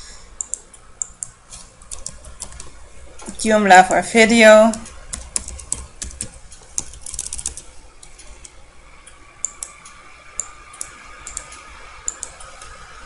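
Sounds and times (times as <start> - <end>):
keyboard typing: 0.4 - 2.7, 4.7 - 8.6, 9.4 - 12.8.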